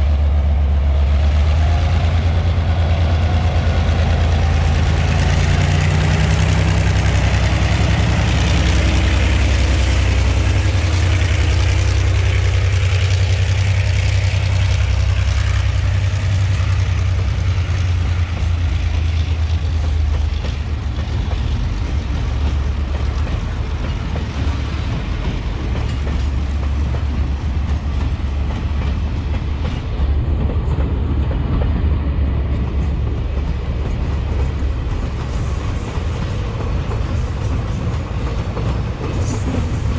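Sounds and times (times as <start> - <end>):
diesel locomotive engine drone: 0.0 - 39.9
freight wagons rolling on rails: 32.6 - 39.9.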